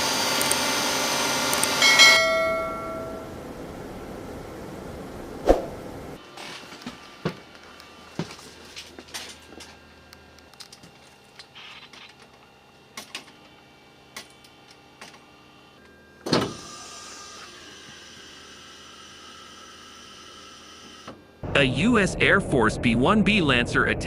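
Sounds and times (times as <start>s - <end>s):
faint steady hum: 1.6s - 6.2s.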